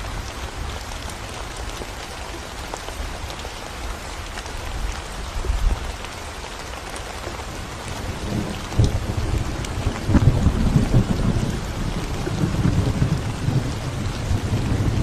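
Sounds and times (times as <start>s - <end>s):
rain on concrete road: 0.0s - 15.0s
thunder rumbling: 8.0s - 15.0s.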